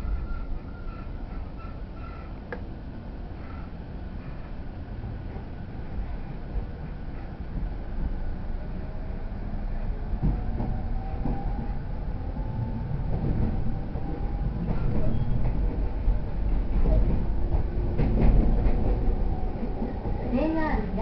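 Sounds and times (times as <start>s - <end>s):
train wheels rumbling on rail: 0.0s - 21.0s
rail-joint clicks: 13.0s - 21.0s.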